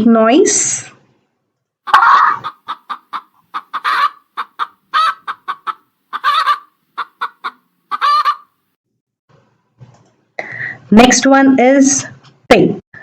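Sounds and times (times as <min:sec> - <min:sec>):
chicken clucking: 0:01.9 - 0:08.6.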